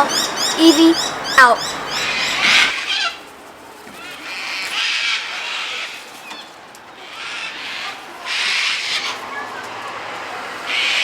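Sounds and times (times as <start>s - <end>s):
bird chirps: 0.0s - 2.7s
bird screeching: 0.0s - 3.1s.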